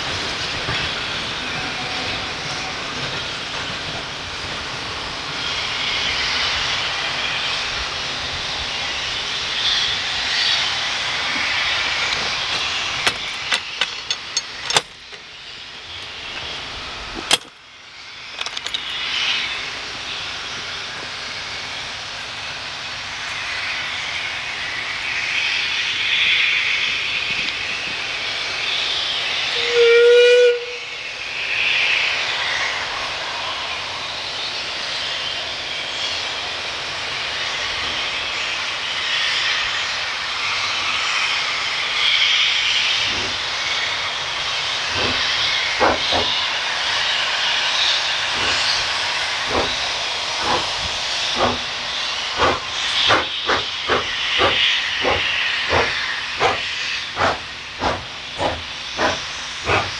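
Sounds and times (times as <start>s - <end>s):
steam hissing: 0.0s - 59.9s
steam whistle blast: 29.5s - 31.0s.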